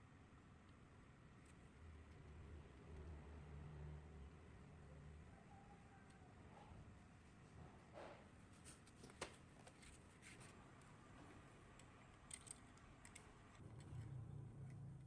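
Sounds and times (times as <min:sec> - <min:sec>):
small parts clicking: 0:11.7 - 0:14.1.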